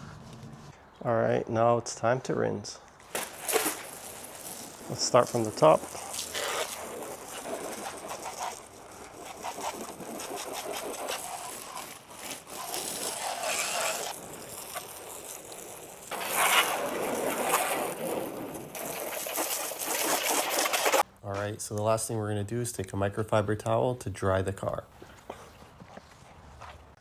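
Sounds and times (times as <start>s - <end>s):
hose spraying water on car: 3.1s - 21.0s.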